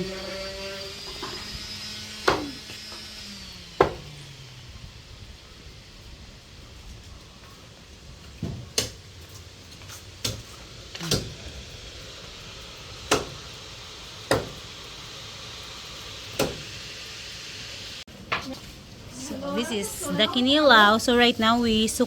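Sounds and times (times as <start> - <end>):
knife chopping meat on board: 2.3 - 2.5
background hiss: 4.1 - 22.0.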